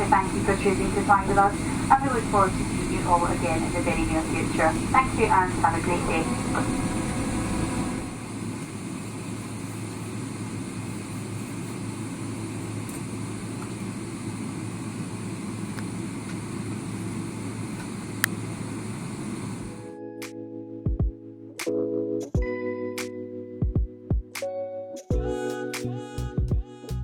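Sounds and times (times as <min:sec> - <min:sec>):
airplane cabin rumble and air hiss: 0:00.0 - 0:19.9.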